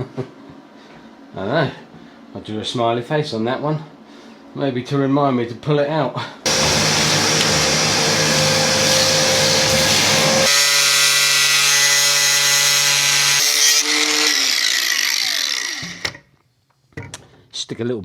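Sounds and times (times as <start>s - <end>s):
power tool motor running: 6.5s - 16.2s.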